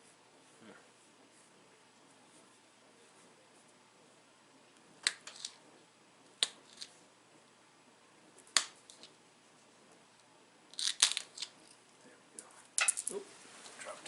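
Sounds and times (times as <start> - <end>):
stone flakes snapping off: 10.7 - 11.5.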